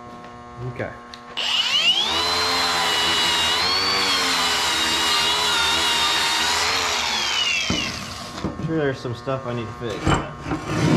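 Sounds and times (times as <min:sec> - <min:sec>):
angle grinder whining on metal: 0:01.4 - 0:08.5.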